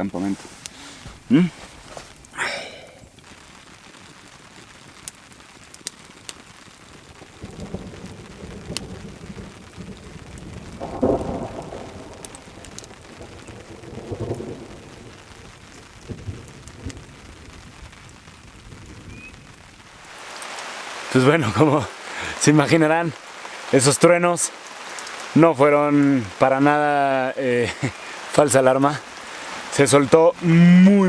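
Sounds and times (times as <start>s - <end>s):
steady rain: 0.0s - 31.0s
thunder rolling: 7.4s - 17.9s.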